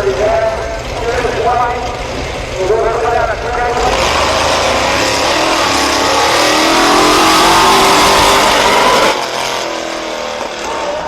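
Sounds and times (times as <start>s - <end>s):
truck engine at high revs: 3.4s - 11.0s.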